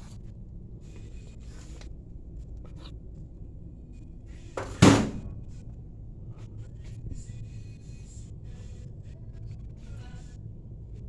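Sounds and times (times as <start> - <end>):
low steady hum: 0.0 - 11.0
loud knock: 4.6 - 5.4.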